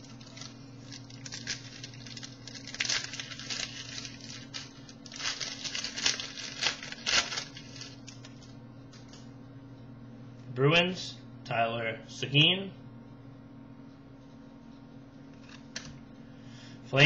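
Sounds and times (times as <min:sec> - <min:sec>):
card wrappers crinkling: 0:00.0 - 0:09.2
steady low hum: 0:00.0 - 0:17.0.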